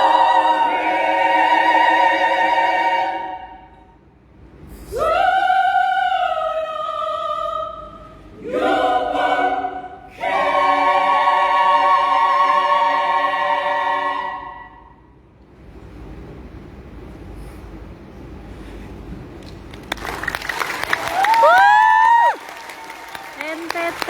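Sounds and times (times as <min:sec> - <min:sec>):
women's choir singing chords: 0:00.0 - 0:03.9, 0:04.9 - 0:15.0.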